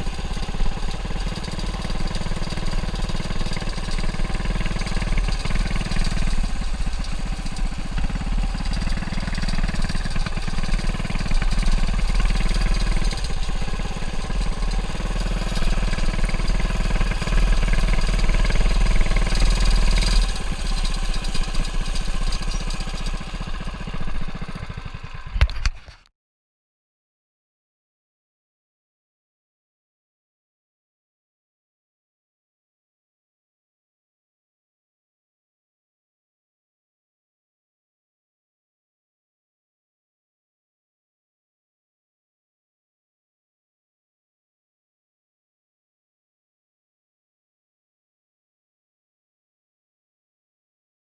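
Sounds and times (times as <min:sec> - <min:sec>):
mini bike engine running: 0:00.0 - 0:26.1.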